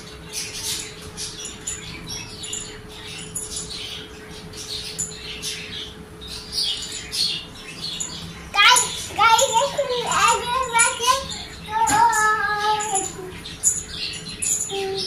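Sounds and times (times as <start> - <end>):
small birds chirping: 0.0 - 15.0
steady hum: 0.0 - 15.0.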